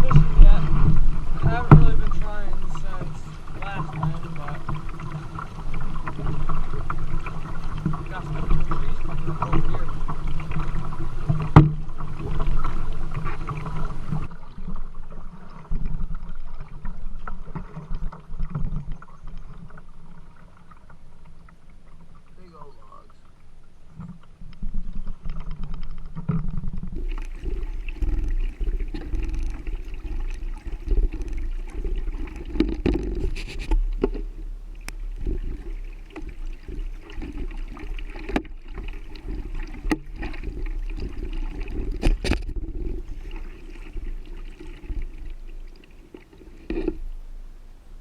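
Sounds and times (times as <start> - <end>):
paddle splashing water: 0.0 - 48.0.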